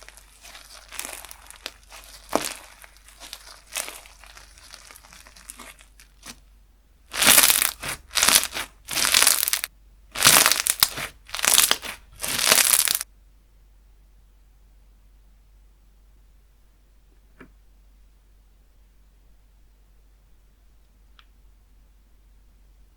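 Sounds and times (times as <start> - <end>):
slime being squeezed crackling: 0.0 - 6.4, 7.1 - 13.0.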